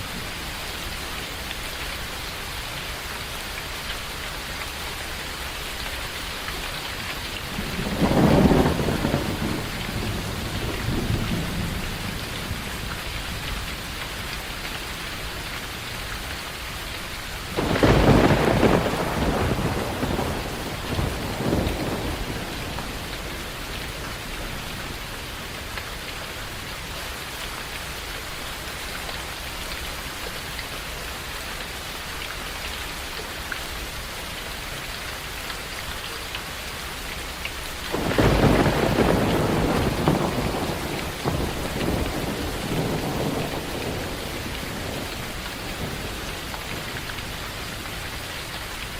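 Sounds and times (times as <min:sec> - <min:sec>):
steady rain: 0:00.0 - 0:48.9
thunder rumbling: 0:07.5 - 0:13.6, 0:17.5 - 0:25.7, 0:37.9 - 0:48.1
sharp thunder crack: 0:07.6 - 0:12.2, 0:17.6 - 0:23.1, 0:37.9 - 0:46.1.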